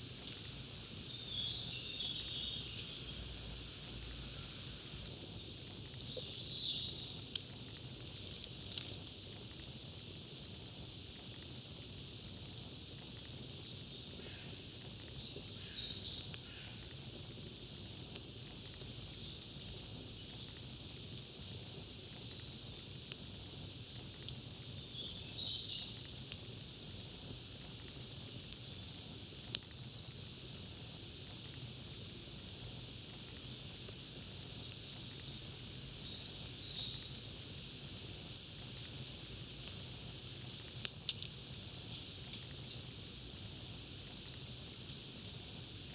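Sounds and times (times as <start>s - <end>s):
campfire crackling: 0.0s - 45.9s
fire popping: 0.0s - 45.9s.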